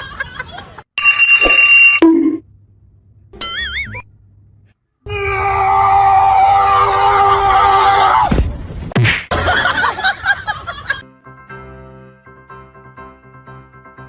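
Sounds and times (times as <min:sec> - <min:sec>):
person screaming: 0:05.1 - 0:08.3.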